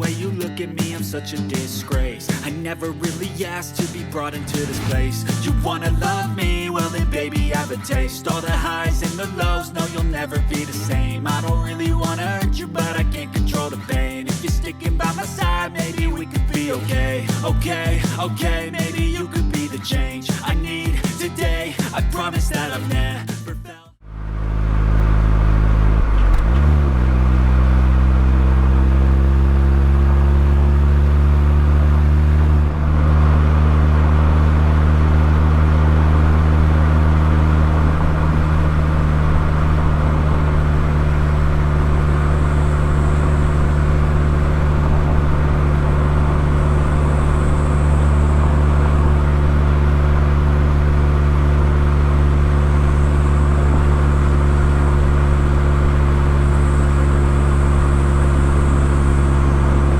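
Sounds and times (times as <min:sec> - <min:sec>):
car exhaust at steady cruise: 0:24.0 - 0:59.9.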